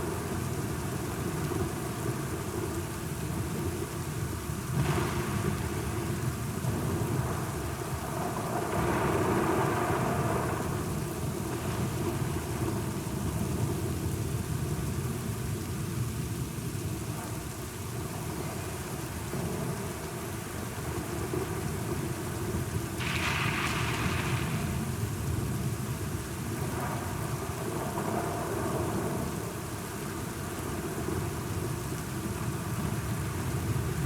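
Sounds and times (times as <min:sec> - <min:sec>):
steady rain: 0:00.0 - 0:34.0
low rolling thunder: 0:20.8 - 0:29.6.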